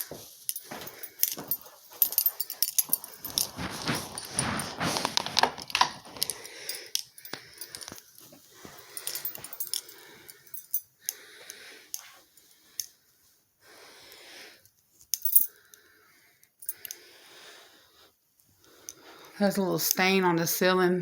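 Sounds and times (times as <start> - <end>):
handling clicks and rustles: 0.0 - 11.2
heavy breathing through face mask: 6.0 - 14.7, 15.3 - 19.4.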